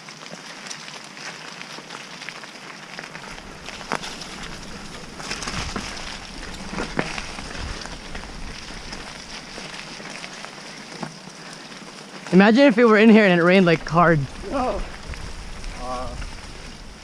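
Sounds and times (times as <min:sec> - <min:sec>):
bike tyres hissing on wet ground: 0:00.0 - 0:17.0
low rumble: 0:03.2 - 0:10.2, 0:13.8 - 0:17.0
bike knocking over bumps: 0:03.2 - 0:11.2.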